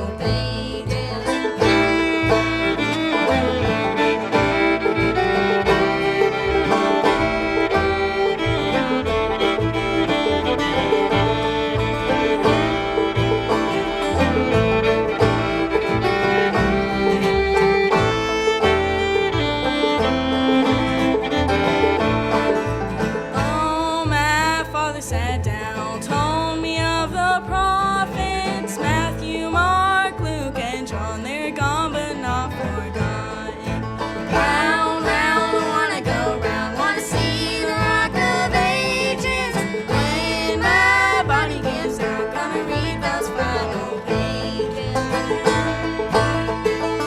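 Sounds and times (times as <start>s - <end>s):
person singing: 0.0s - 3.2s, 23.4s - 45.8s
banjo: 0.0s - 47.0s
bass: 0.0s - 47.0s
bluegrass band playing: 0.0s - 47.0s
fiddle: 0.0s - 47.0s
guitar: 0.0s - 47.0s.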